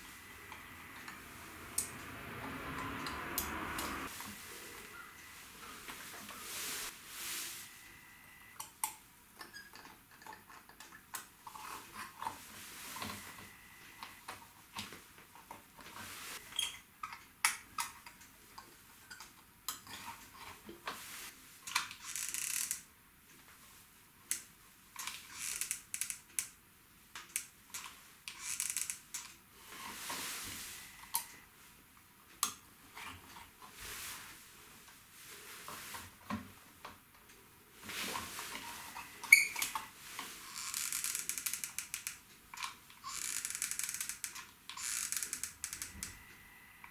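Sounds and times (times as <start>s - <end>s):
short hissing noises: 3.5s - 8.6s.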